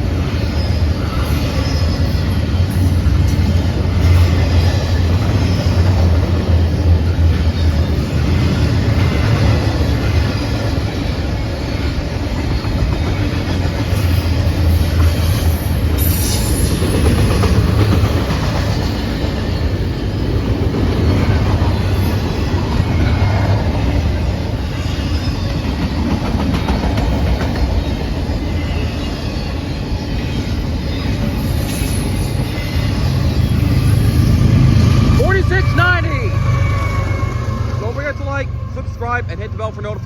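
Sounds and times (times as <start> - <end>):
clickety-clack over rail joints: 0.0 - 40.0
train wheels rumbling on rail: 0.0 - 40.0
high wheel screech: 14.0 - 17.2, 28.5 - 40.0.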